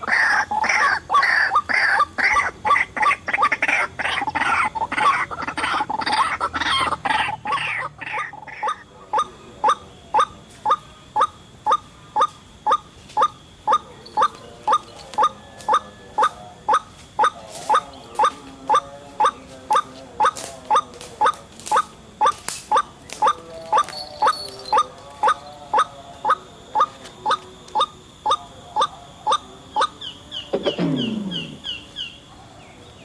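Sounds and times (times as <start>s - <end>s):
waterhen harsh calls: 0.0s - 30.2s.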